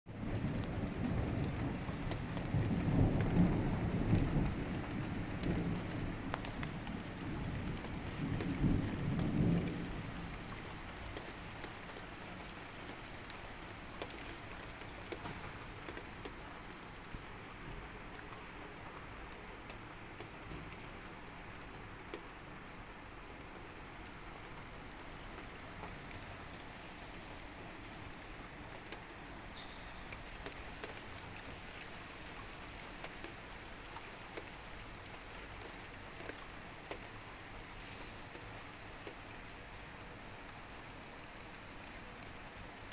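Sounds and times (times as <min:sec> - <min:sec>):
thunder rumbling: 0:00.1 - 0:14.0
steady rain: 0:00.1 - 0:42.9
sharp drips: 0:04.1 - 0:42.5.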